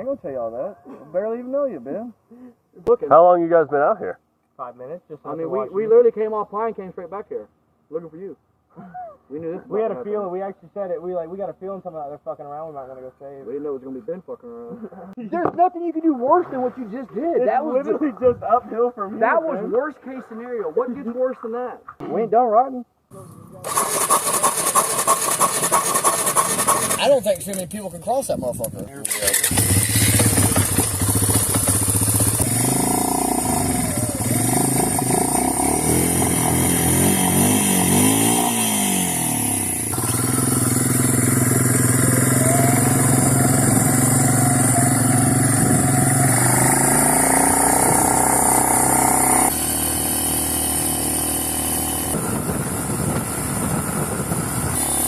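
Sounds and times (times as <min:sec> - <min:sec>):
atv engines revving: 0:23.1 - 0:28.2, 0:29.0 - 0:55.0.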